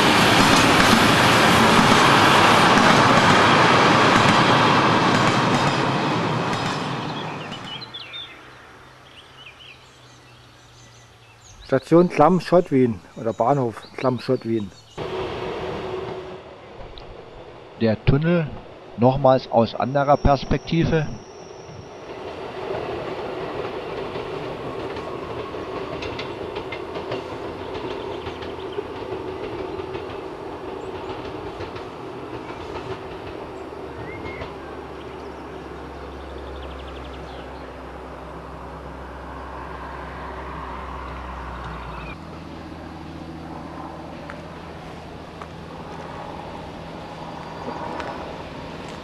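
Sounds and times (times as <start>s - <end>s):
train wheels clicking on rails: 0.0s - 8.1s, 21.7s - 37.4s
passenger train running: 0.0s - 9.0s, 11.6s - 49.0s
steady outdoor background: 0.0s - 49.0s.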